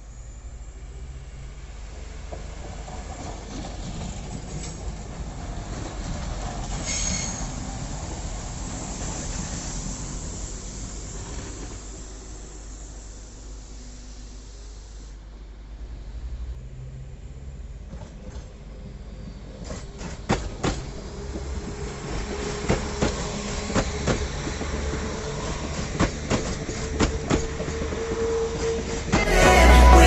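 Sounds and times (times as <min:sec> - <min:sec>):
train low rumble: 0:00.0 - 0:30.0
train wheels clicking over rail joints: 0:19.5 - 0:29.2.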